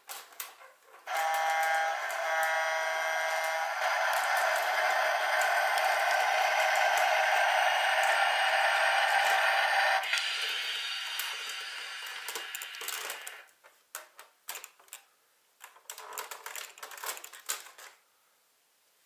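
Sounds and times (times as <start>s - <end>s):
electronic toy sound effect: 1.1s - 13.5s
plastic clicks and rattles: 12.3s - 18.0s.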